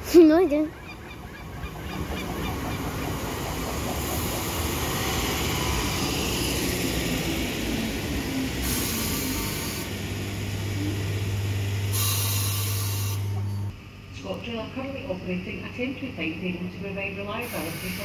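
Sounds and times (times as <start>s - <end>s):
train rolling over rails: 0.0s - 13.7s.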